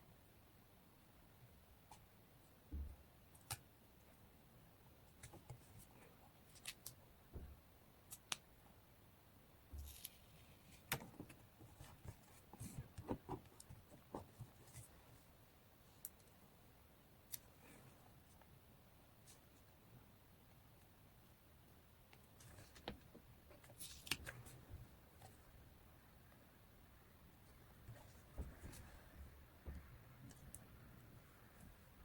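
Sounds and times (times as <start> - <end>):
soft thumps: 27.8 - 30.0.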